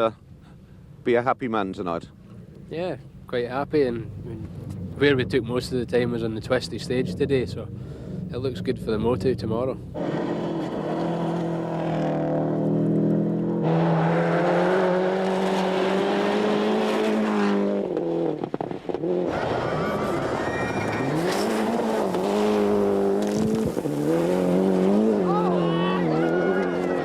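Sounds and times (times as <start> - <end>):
rally car engine at full throttle: 4.0 - 27.0.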